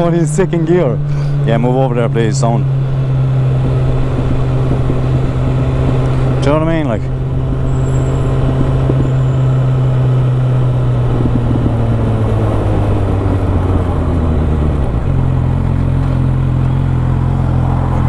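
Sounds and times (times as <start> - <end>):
motorcycle engine running: 0.0 - 18.0
rushing noise: 4.6 - 15.0.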